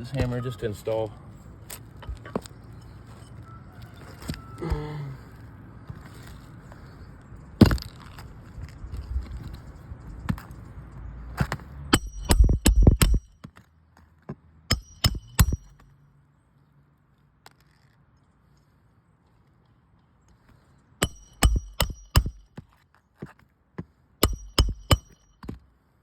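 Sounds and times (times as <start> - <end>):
hammer striking metal: 11.9 - 13.3, 14.7 - 15.8, 21.0 - 22.5, 24.2 - 25.4.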